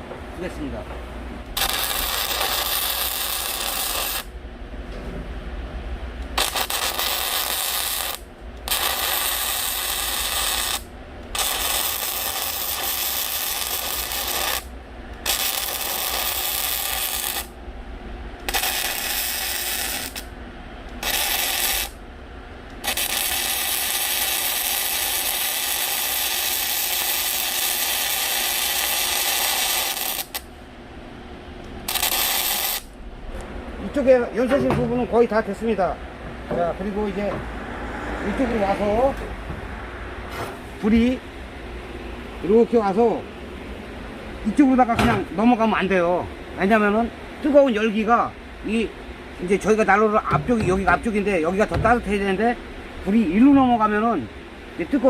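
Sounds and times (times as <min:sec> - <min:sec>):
arc welding crackling sizzle: 0:01.4 - 0:04.4, 0:06.2 - 0:17.6, 0:18.4 - 0:22.0, 0:22.7 - 0:30.6, 0:31.6 - 0:33.1.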